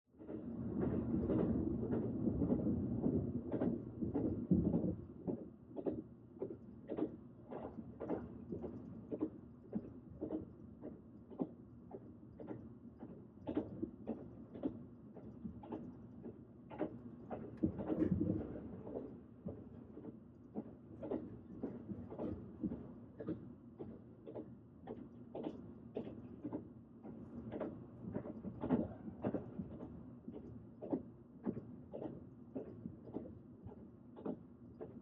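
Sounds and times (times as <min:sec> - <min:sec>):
train rumbling on rails: 0:00.3 - 0:05.0.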